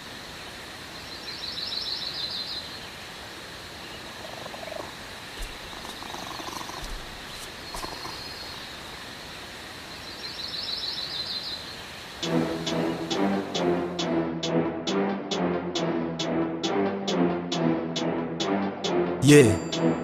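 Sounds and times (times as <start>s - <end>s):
steady hiss: 0.0s - 13.6s
faint bird chirps: 3.8s - 12.0s.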